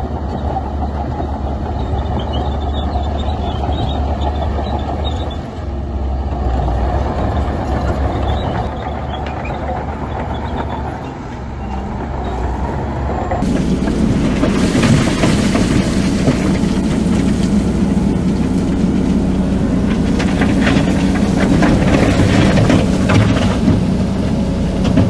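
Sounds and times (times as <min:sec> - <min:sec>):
heavy diesel machinery drone: 0:00.0 - 0:25.0
loud rough machine noise: 0:00.0 - 0:25.0
faint metallic squeaks: 0:08.1 - 0:12.6.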